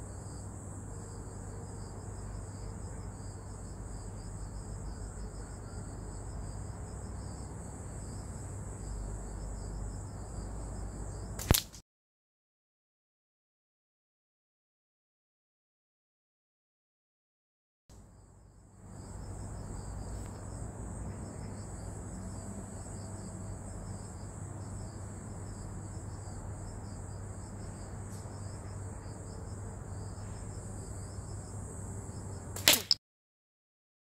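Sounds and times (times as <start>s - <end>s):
insects chirping: 0.0s - 11.7s, 18.0s - 33.0s
slingshot cracks: 11.4s - 11.8s, 32.6s - 33.0s.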